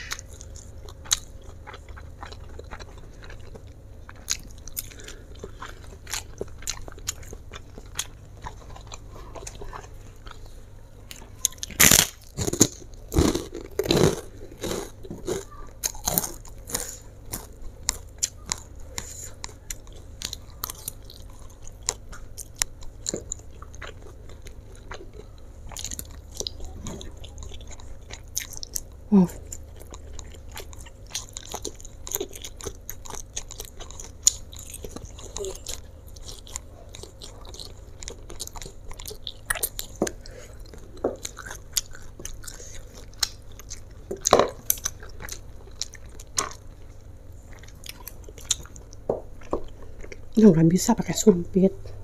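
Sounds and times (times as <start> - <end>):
person chewing noodles: 0.0 - 50.4.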